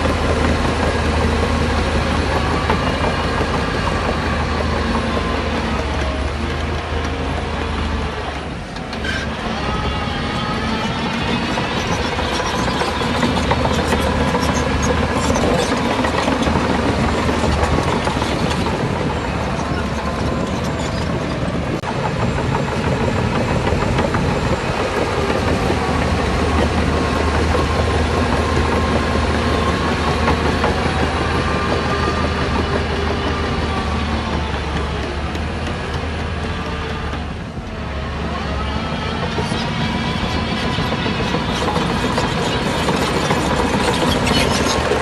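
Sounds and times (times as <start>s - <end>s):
heavy machinery diesel engine: 0.0s - 45.0s.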